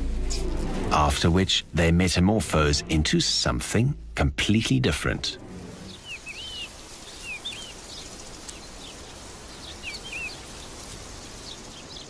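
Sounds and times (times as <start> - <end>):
soft forest hiss: 0.0 - 12.0
small bird chirping: 5.8 - 12.0.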